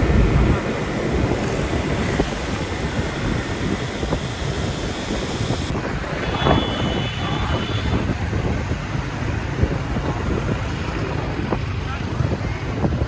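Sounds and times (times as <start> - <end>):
motorcycle engine: 0.0 - 8.1
street traffic: 0.0 - 13.0
wind buffeting microphone: 0.0 - 13.0.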